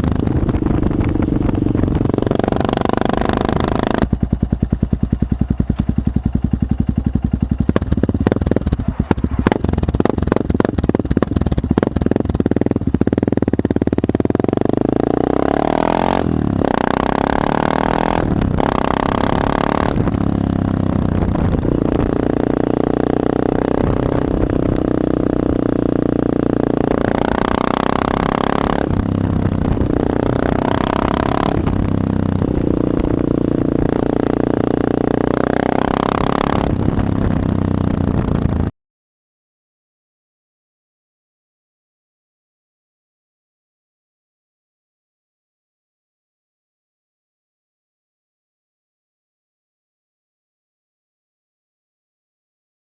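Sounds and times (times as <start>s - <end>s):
loud motorcycle engine revving: 0.0s - 38.7s.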